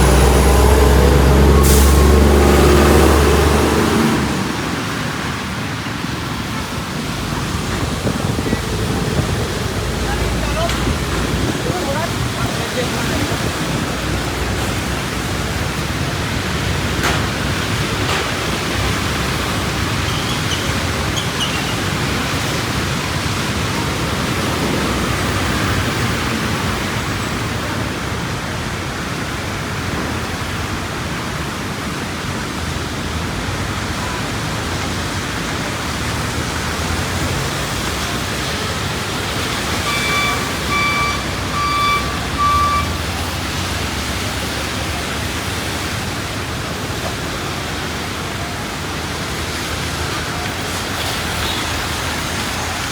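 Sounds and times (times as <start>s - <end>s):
heavy rain falling: 0.0s - 52.9s
short beeps: 39.8s - 43.2s.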